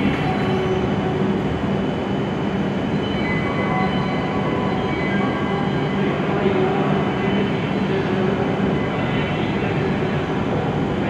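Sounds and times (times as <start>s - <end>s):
train running rumble: 0.0s - 4.8s.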